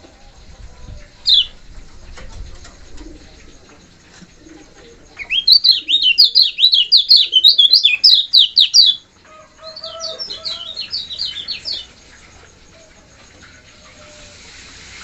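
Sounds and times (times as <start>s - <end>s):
bird high chirping: 1.0s - 1.6s, 5.1s - 9.0s, 9.6s - 12.9s.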